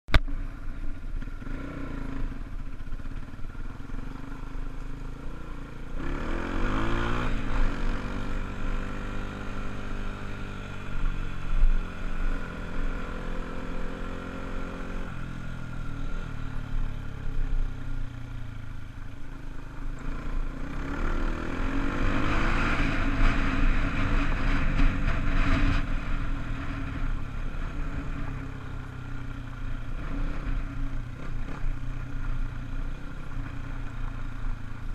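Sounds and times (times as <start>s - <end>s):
dirt bike engine revving: 5.1s - 10.5s, 20.0s - 28.6s.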